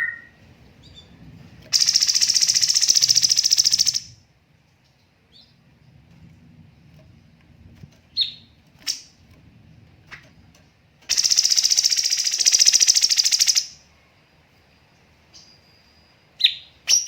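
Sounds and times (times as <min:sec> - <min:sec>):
bird calls and rattling trill: 0:00.0 - 0:04.2, 0:08.0 - 0:09.3, 0:10.1 - 0:13.8.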